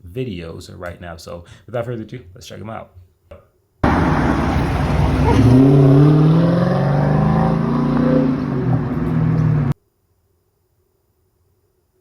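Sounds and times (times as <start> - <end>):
car engine accelerating hard: 3.8 - 9.8.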